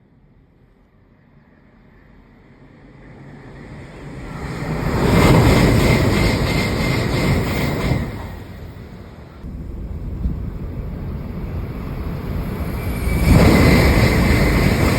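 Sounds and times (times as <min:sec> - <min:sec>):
bullet train passing at speed: 0:00.0 - 0:14.9.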